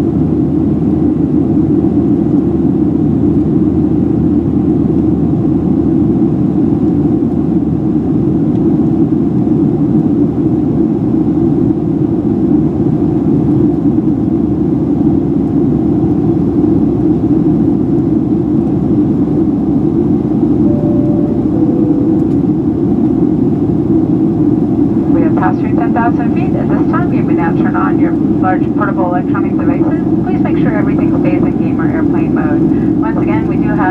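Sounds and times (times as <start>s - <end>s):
aircraft engine and airflow rumble: 0.0s - 33.9s
two-tone cabin chime: 20.6s - 22.8s.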